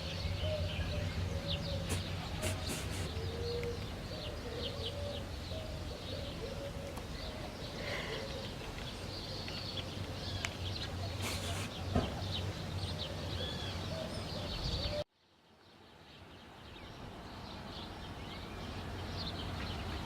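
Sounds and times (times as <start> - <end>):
dove cooing: 0.0 - 9.5
steady low hum: 0.0 - 14.7
swallows twittering: 0.0 - 15.0.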